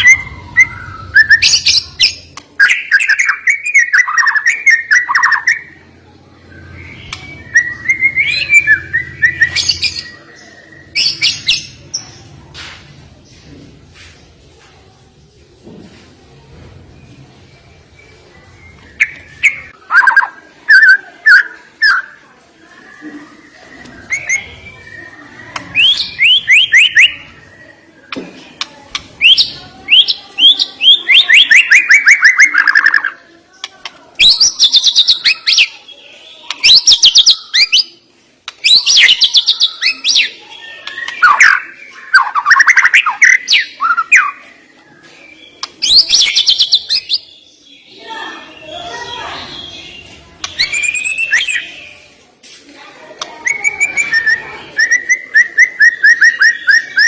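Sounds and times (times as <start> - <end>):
bird singing trills: 23.1 - 27.7, 48.5 - 51.9.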